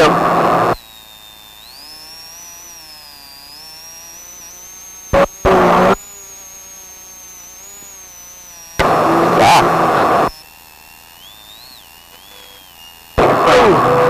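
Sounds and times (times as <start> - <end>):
loud burst of noise: 8.8 - 10.4, 11.5 - 14.0.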